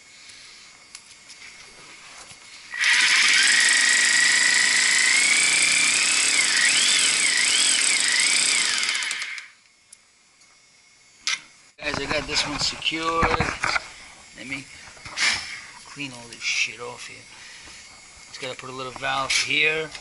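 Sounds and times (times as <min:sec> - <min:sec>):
power drill motor whine: 0:02.7 - 0:09.6.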